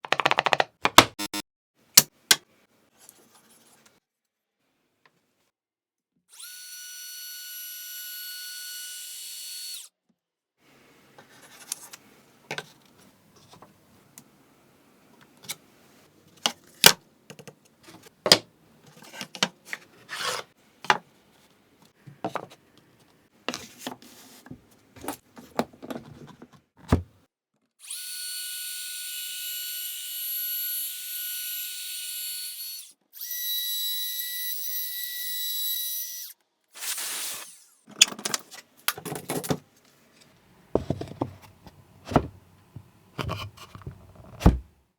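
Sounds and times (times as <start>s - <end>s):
small power tool motor whining: 6.3s - 9.9s, 27.8s - 37.8s.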